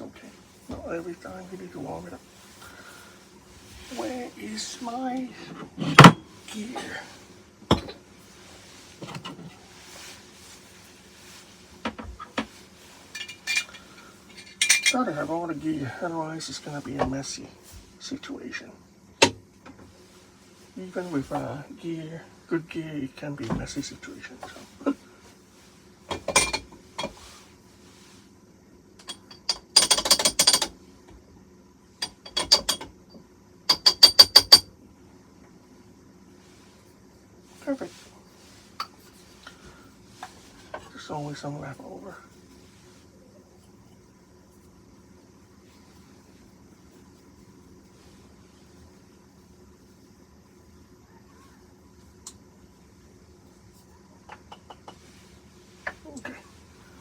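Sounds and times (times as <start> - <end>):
kitchenware knocking and tapping: 7.7 - 8.0, 26.1 - 27.2, 29.0 - 30.7, 32.0 - 32.9, 33.7 - 34.7, 54.3 - 55.0
clinking taps on coffee grinder: 32.0 - 34.7.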